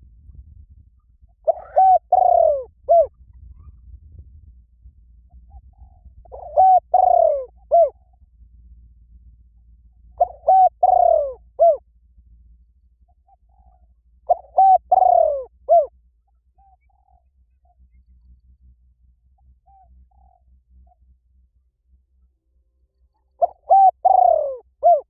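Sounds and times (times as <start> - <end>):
dove cooing: 1.4 - 3.8, 5.3 - 8.0, 10.1 - 11.8, 13.1 - 15.9, 19.6 - 20.5, 23.1 - 25.0.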